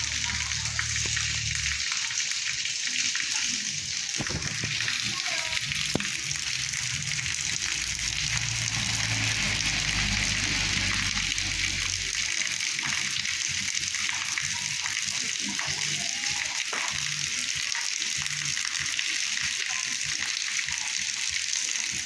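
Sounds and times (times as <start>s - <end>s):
heavy rain falling: 0.0s - 2.2s, 3.8s - 17.1s
low rumble: 5.8s - 12.3s.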